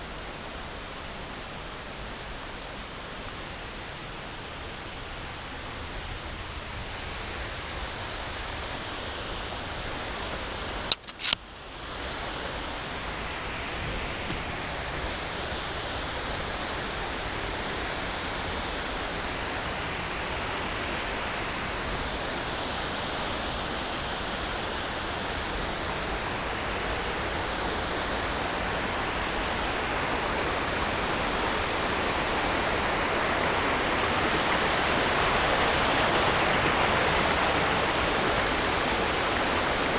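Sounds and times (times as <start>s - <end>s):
river water rushing over rocks: 0.0s - 39.9s
sharp clicks: 10.9s - 11.4s.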